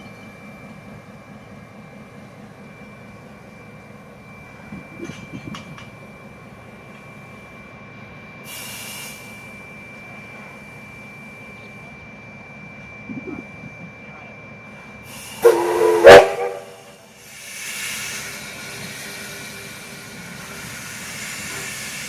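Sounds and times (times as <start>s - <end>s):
locomotive hum with high whine: 0.0s - 22.0s
loud hiss: 8.5s - 9.4s, 15.1s - 22.0s.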